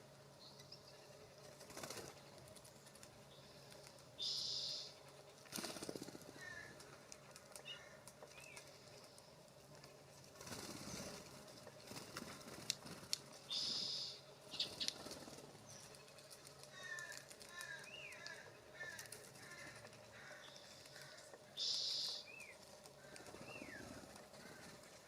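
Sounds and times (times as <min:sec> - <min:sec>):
bird wings fluttering: 0:01.4 - 0:04.0, 0:05.1 - 0:08.8, 0:09.7 - 0:13.5, 0:14.6 - 0:17.8, 0:22.5 - 0:25.0.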